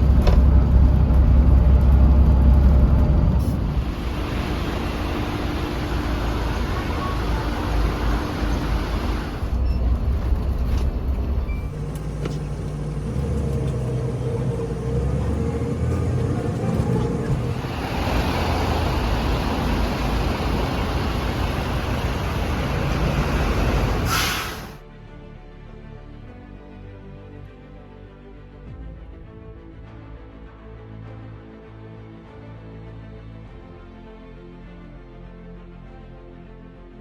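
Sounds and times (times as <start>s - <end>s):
road traffic rumble: 0.0s - 24.8s.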